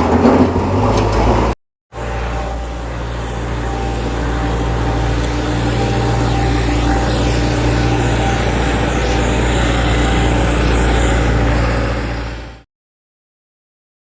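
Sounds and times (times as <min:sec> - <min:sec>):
heavy vehicle engine drone: 0:01.9 - 0:12.6.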